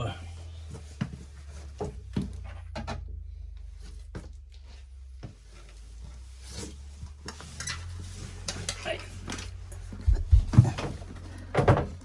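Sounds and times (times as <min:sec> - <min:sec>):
steady low hum: 0:08.0 - 0:12.0.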